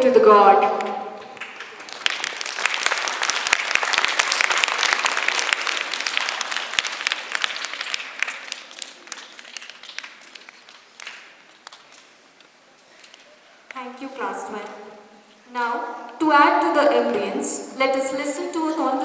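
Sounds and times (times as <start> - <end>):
audience applause: 0.8 - 14.0.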